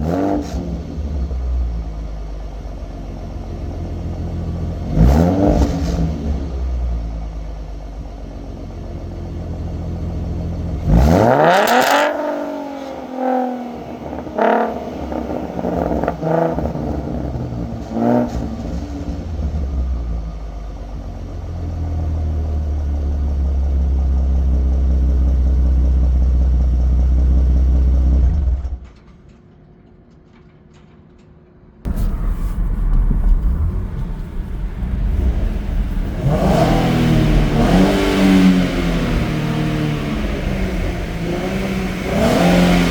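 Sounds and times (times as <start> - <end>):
car engine revving: 0.0 - 1.6, 4.0 - 7.0, 10.7 - 19.7, 31.9 - 42.9.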